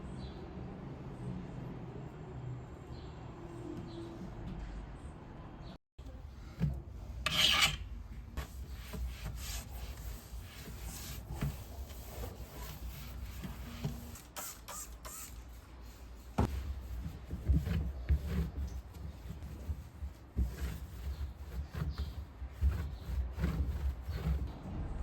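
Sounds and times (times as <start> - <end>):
rubbing and scraping: 6.6 - 24.6.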